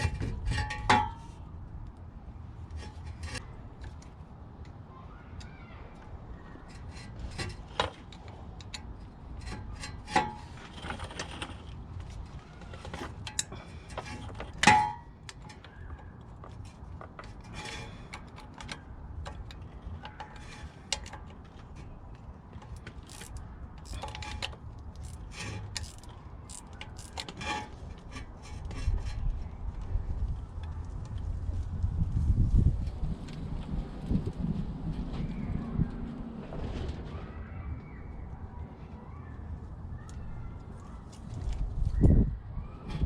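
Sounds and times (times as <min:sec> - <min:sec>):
tools and metal parts clinking: 0:00.0 - 0:01.3, 0:06.7 - 0:29.2.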